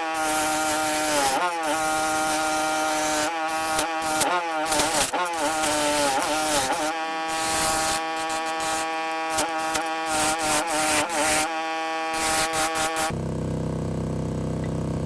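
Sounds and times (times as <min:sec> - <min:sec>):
cutter rasping on wood: 0:00.0 - 0:13.1
power tool motor whining: 0:00.0 - 0:13.2.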